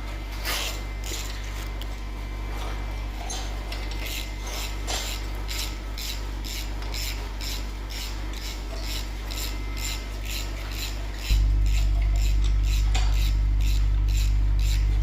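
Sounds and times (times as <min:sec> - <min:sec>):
steady low hum: 0:00.0 - 0:15.0
hand tool scraping metal: 0:03.3 - 0:15.0.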